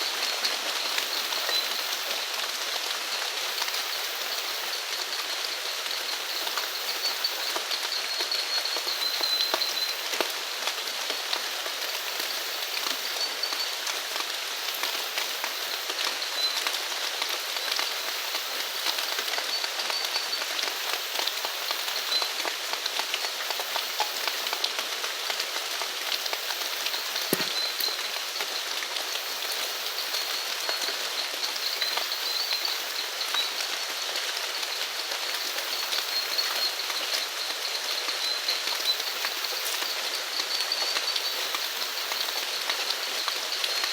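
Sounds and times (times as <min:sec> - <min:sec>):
steady rain falling: 0:00.0 - 0:43.9
heavy raindrop landing: 0:27.2 - 0:27.9.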